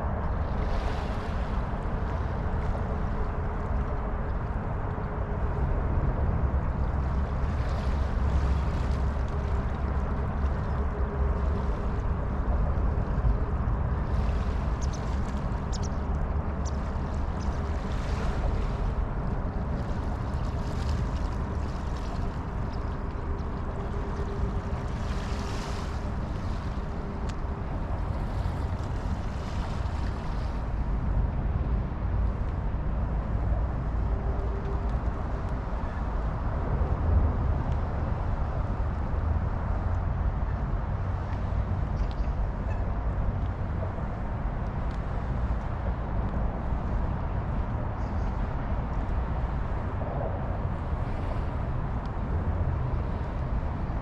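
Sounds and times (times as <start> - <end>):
faint constant hum: 0.0 - 54.0
light wind: 0.0 - 54.0
low mechanical drone: 0.0 - 54.0.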